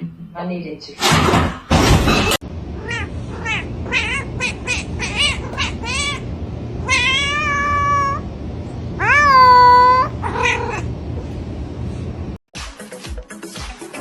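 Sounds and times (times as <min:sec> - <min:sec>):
cat meowing: 0:02.8 - 0:08.2, 0:09.0 - 0:10.9.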